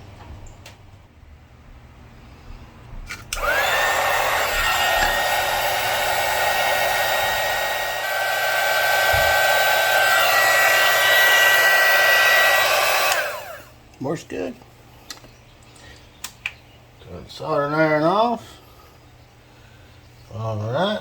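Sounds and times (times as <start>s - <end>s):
heat gun fan blowing: 2.8s - 13.9s
heat gun switch click: 3.3s - 10.4s, 11.1s - 13.4s.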